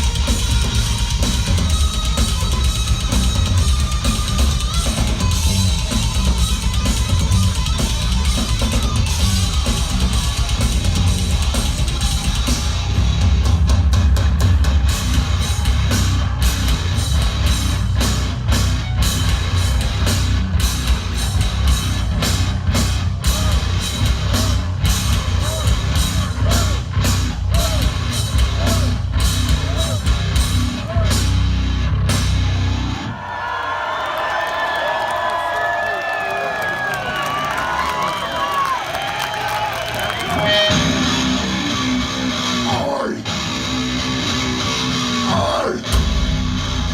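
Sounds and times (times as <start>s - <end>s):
fast driving drums: 0.0s - 33.1s, 36.5s - 46.9s
heavy metal band playing live: 0.0s - 33.2s, 39.4s - 46.9s.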